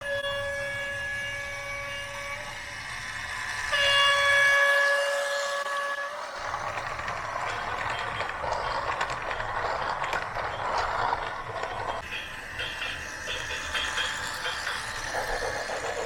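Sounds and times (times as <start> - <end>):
toy machine whirring and rattling: 6.2 - 16.0.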